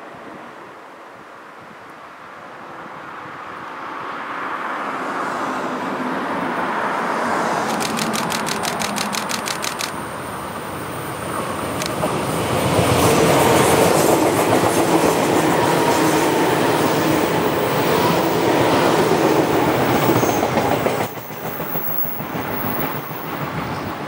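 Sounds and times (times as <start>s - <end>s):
train wheels clattering on rails: 7.6s - 10.0s, 11.8s - 23.8s.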